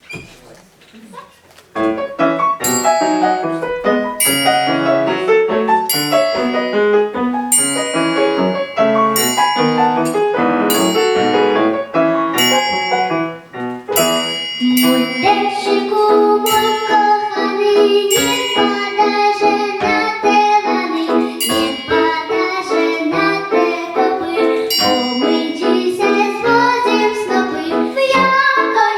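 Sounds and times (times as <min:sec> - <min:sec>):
piano playing: 0:01.8 - 0:28.9
person singing: 0:14.0 - 0:28.9.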